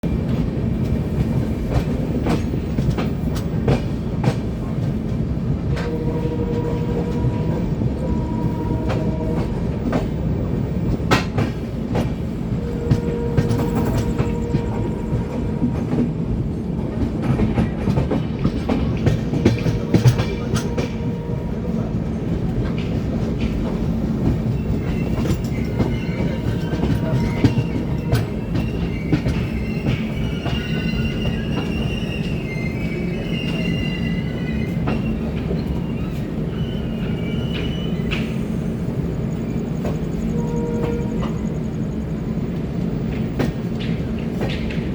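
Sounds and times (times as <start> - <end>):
train rumbling on rails: 0.0 - 44.9
wheels clicking over rail joints: 43.1 - 44.9.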